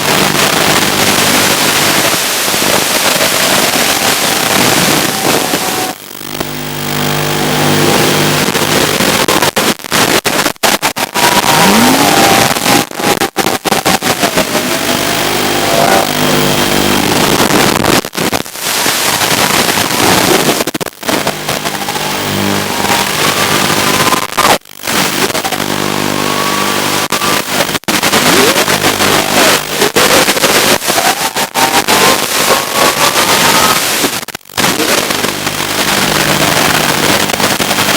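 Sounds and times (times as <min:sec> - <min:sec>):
static hiss: 0:00.0 - 0:37.9
quadcopter motors whining: 0:00.8 - 0:06.0, 0:11.1 - 0:17.0, 0:21.2 - 0:24.3, 0:28.2 - 0:33.8.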